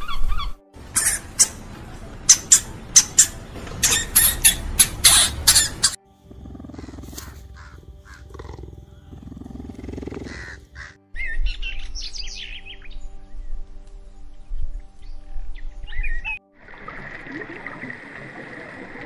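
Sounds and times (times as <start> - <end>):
cheetah calls and chirps: 0.0 - 13.0
songbird chirping: 0.0 - 16.6
background music: 0.0 - 19.0.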